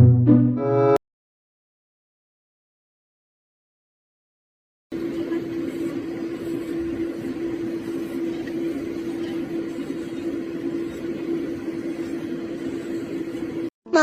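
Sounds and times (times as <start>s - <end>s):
steady mechanical hum: 4.9s - 14.0s.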